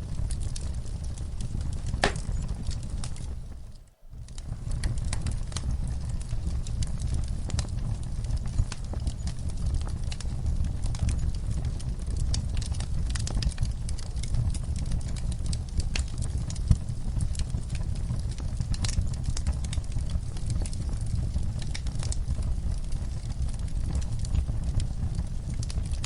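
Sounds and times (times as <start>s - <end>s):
fire crackling and popping: 0.0s - 26.0s
low rumble of flames: 0.0s - 26.0s.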